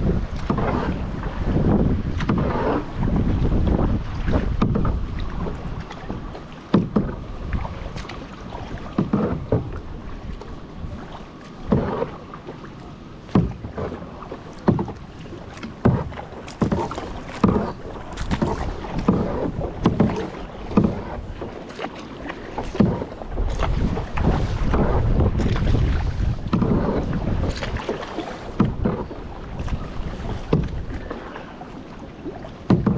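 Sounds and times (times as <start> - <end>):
paddle splashing in water: 0.0 - 32.9.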